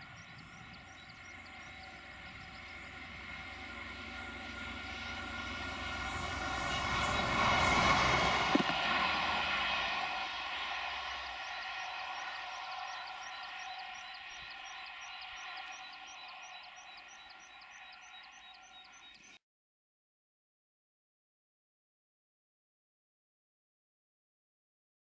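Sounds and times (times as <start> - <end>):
diesel train engine drone: 0.0 - 19.4.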